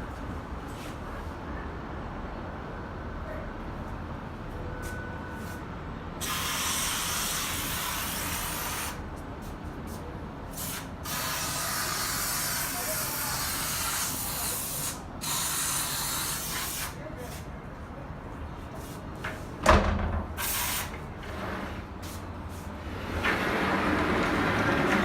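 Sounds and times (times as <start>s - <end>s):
hissing spray bursts: 6.2s - 9.0s, 10.5s - 17.0s, 20.4s - 21.0s.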